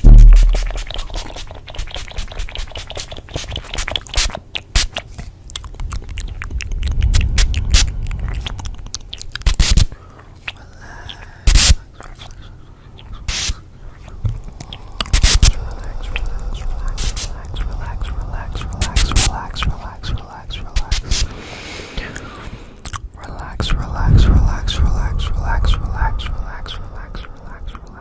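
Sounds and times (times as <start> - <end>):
louder knocks: 0.0 - 0.8
low rumble: 0.0 - 1.0, 5.7 - 9.4, 14.1 - 20.8, 23.6 - 28.0.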